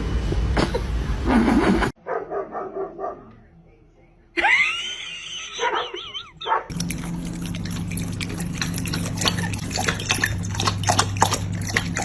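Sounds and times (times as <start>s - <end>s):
dog yelping: 5.6s - 6.7s
steady low hum: 6.7s - 12.0s
water clicking and splashing: 6.7s - 12.0s.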